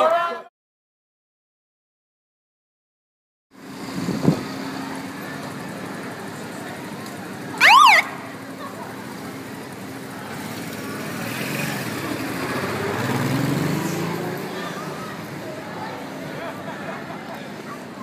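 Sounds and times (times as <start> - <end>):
street traffic: 3.5 - 18.0
emergency vehicle siren chirp: 7.6 - 8.4.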